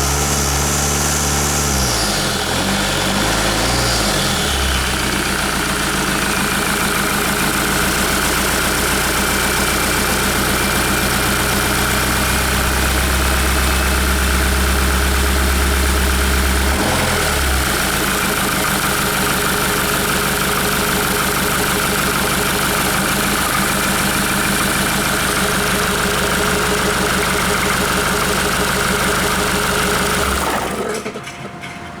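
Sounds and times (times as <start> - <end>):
diesel engine idling: 0.0 - 31.4
deep low hum: 11.6 - 16.8.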